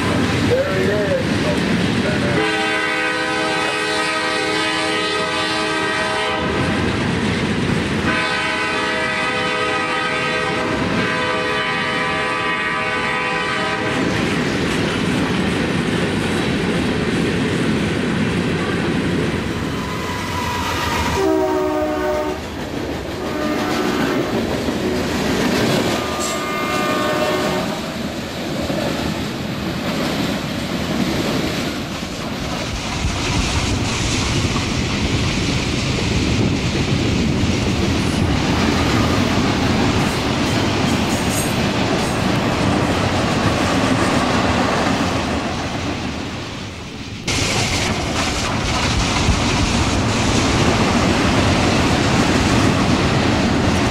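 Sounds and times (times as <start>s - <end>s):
train wheels rumbling and clattering: 0.0s - 53.9s
locomotive horn blasts: 2.4s - 6.7s, 8.1s - 14.0s, 21.1s - 22.4s, 23.2s - 24.3s, 26.1s - 27.9s.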